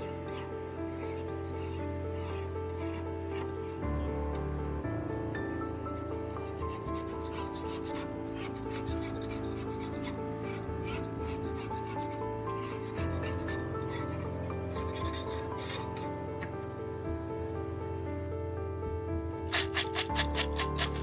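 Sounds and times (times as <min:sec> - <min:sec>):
filing metal by hand: 0:00.0 - 0:03.8, 0:05.4 - 0:16.0, 0:19.5 - 0:21.0
background music: 0:00.0 - 0:21.0.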